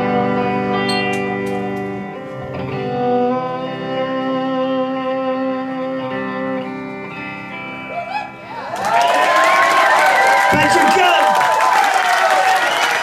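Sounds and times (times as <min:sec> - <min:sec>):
live band guitar chords: 0:00.0 - 0:08.7, 0:10.4 - 0:11.4.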